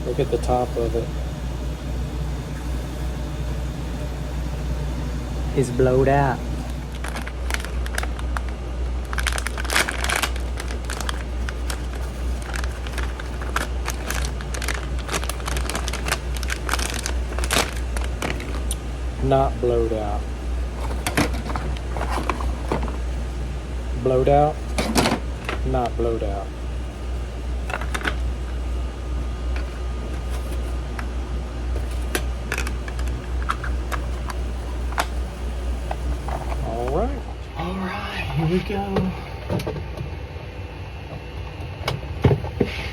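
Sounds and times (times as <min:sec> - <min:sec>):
steady low hum: 0:00.0 - 0:42.9
crinkling and rustling: 0:06.7 - 0:18.8, 0:20.7 - 0:23.2, 0:27.6 - 0:28.6, 0:29.5 - 0:37.4.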